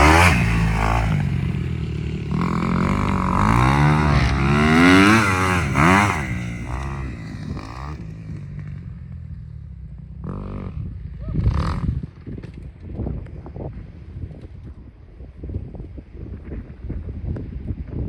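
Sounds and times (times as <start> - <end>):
motocross engine revving: 0.0 - 8.7.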